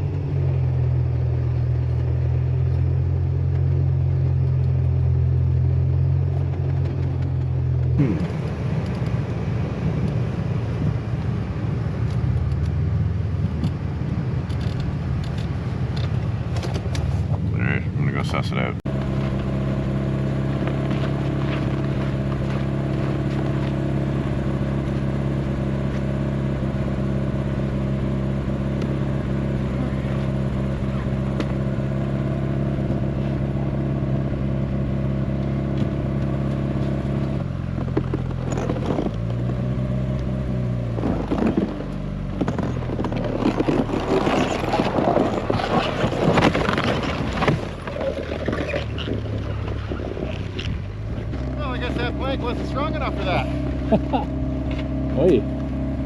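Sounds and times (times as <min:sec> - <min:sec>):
vehicle engine idling: 0:00.0 - 0:56.0
loud scraping and cracking: 0:42.4 - 0:51.9.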